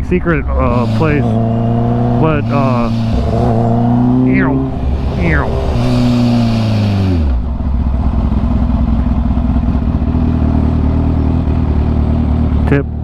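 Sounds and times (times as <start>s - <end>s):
motorcycle engine rumbling: 0.0s - 13.0s
hiss: 0.6s - 7.8s.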